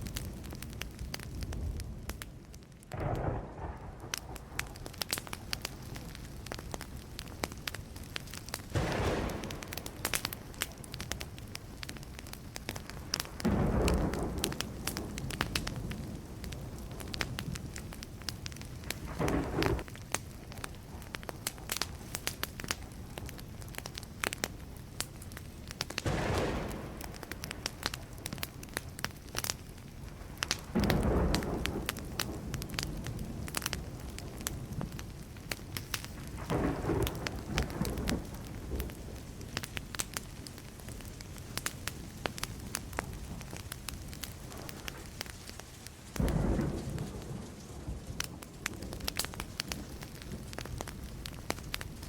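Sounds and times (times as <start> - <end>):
campfire crackling: 0.0 - 52.0.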